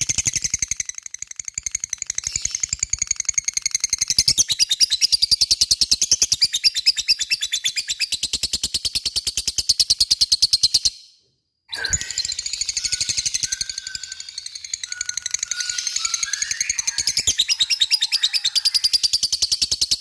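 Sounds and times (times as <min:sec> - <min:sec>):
lovebird chattering call: 0:11.7 - 0:19.4.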